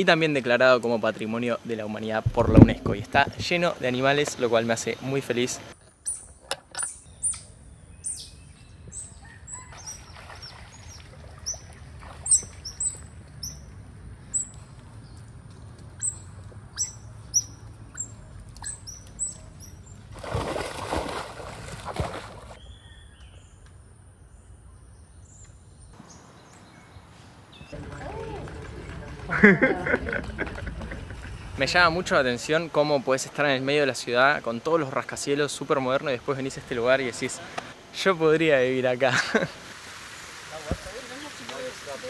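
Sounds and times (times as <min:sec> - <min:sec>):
birds chirping: 0:01.0 - 0:20.6, 0:22.1 - 0:28.9, 0:30.3 - 0:33.6.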